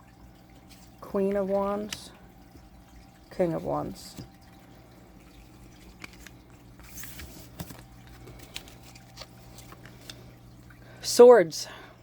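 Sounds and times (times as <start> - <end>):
low steady hum: 0.0 - 12.0
cards tapping and sliding: 6.0 - 10.2.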